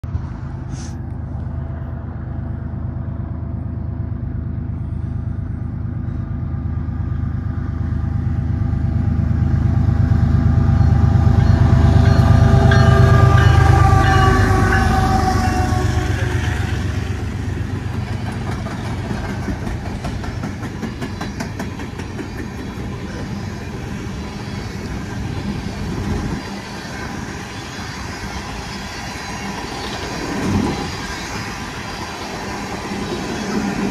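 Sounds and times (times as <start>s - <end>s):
diesel locomotive engine rumble: 0.0s - 33.9s
wagons clickety-clack on rails: 17.2s - 23.8s.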